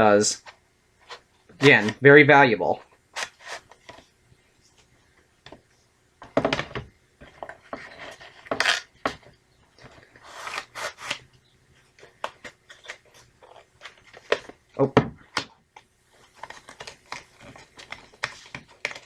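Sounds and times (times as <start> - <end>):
rubbing and rustling: 2.7 - 5.9.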